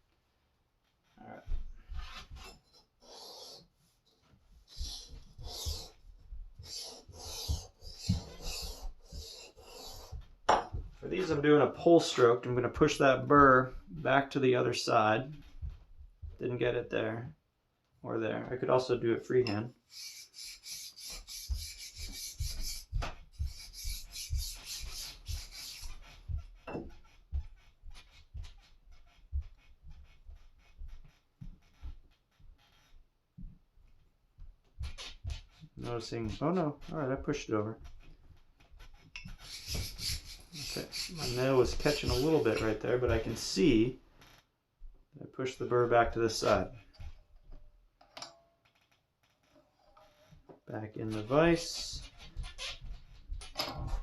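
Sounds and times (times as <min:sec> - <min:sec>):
sharpening stone rasping on blade: 0:02.4 - 0:03.7, 0:06.6 - 0:10.6, 0:19.9 - 0:26.0, 0:39.2 - 0:42.7.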